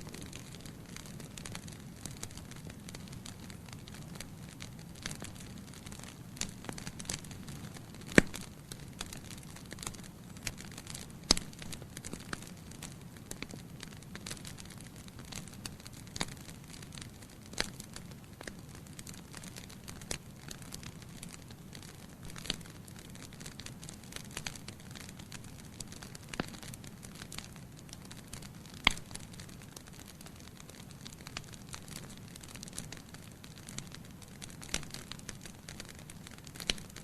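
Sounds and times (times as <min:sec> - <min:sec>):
sharp fire pops: 0:00.0 - 0:18.6, 0:28.3 - 0:37.0
logs crackling and snapping: 0:00.0 - 0:37.0
wood fire rumbling: 0:00.0 - 0:37.0.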